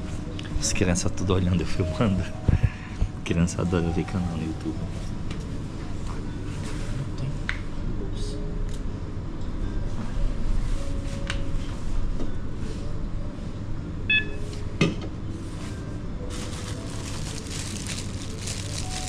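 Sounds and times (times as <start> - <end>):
steady low hum: 0.0 - 19.0
self-checkout machine beep: 14.0 - 14.6.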